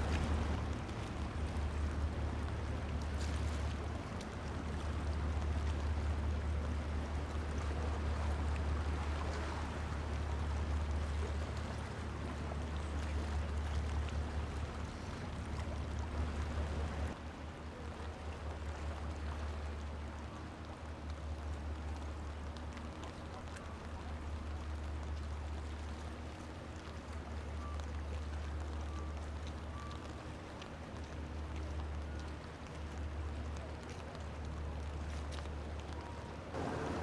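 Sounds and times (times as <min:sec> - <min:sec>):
rain drops ticking: 0:00.0 - 0:08.9, 0:10.4 - 0:37.0
steady rain hiss: 0:36.5 - 0:37.0.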